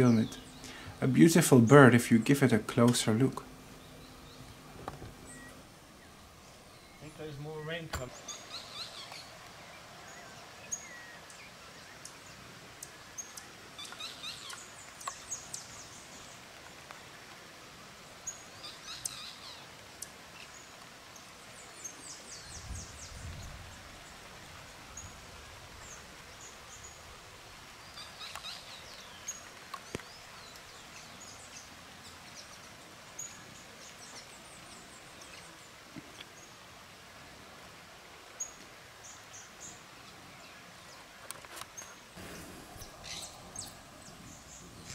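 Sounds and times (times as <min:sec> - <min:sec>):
birds chirping and trilling: 0:00.0 - 0:16.4, 0:18.2 - 0:25.2, 0:27.7 - 0:35.7, 0:41.7 - 0:44.9
low rumble: 0:42.2 - 0:44.9.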